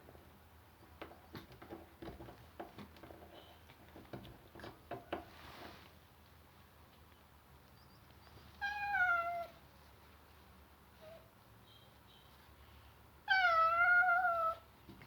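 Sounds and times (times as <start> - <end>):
cat meowing: 8.6 - 9.6, 13.3 - 14.6.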